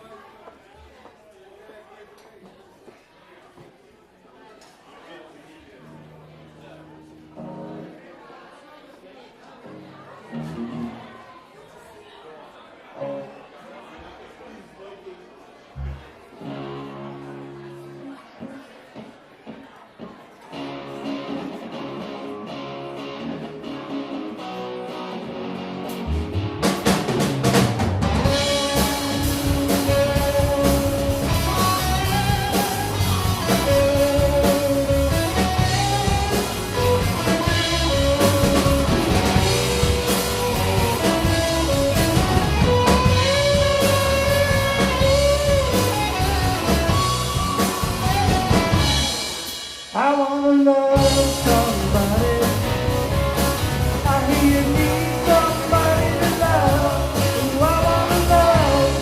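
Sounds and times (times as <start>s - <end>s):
live rock band instrumental: 10.3s - 11.2s, 15.8s - 59.0s.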